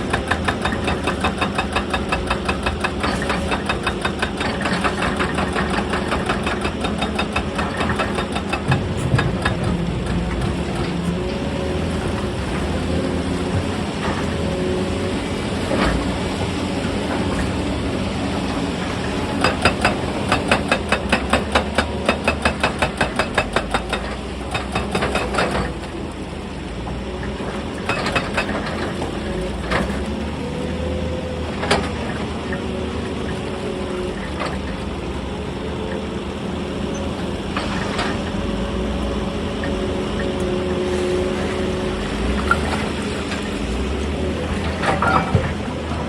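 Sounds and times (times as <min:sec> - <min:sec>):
hydraulic breaker hammering stone: 0:00.0 - 0:12.6, 0:18.9 - 0:25.9, 0:27.7 - 0:30.0
excavator diesel engine running: 0:00.0 - 0:46.0.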